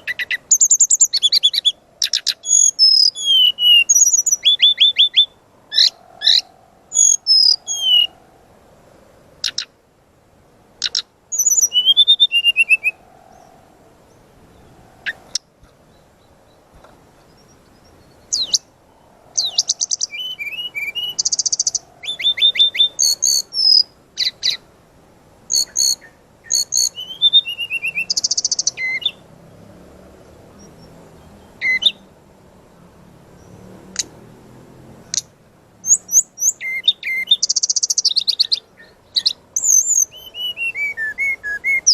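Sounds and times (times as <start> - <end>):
songbird singing trills and whistles: 0.0 - 8.3, 9.4 - 9.8, 10.8 - 24.7, 25.5 - 29.3, 30.5 - 32.1, 35.0 - 41.9.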